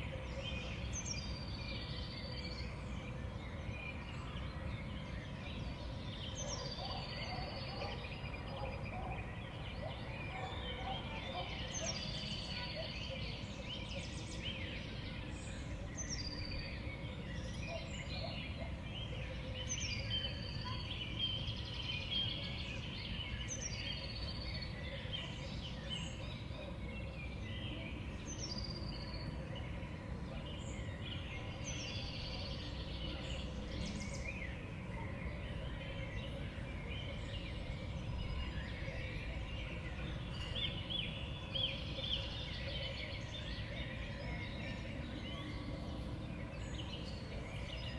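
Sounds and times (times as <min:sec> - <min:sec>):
songbirds chirping and twittering: 0:00.0 - 0:47.9.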